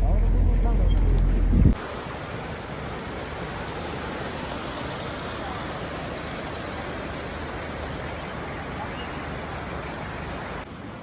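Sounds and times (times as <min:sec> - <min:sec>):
rushing water: 0:01.7 - 0:11.0.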